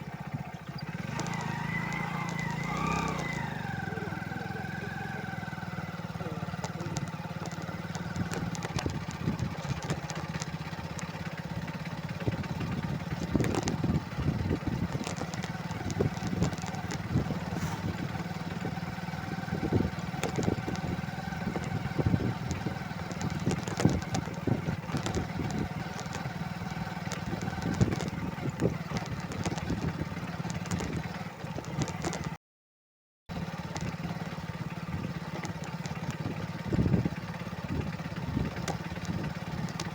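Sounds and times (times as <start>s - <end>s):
motorcycle engine running: 0.0s - 32.4s, 33.3s - 39.9s
sharp knocks and rattles: 6.0s - 18.7s, 19.6s - 32.4s.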